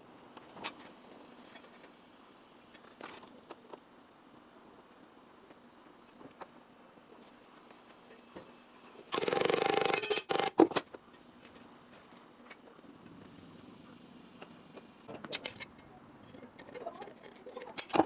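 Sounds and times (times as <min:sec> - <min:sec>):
short welding bursts: 0:09.1 - 0:10.6.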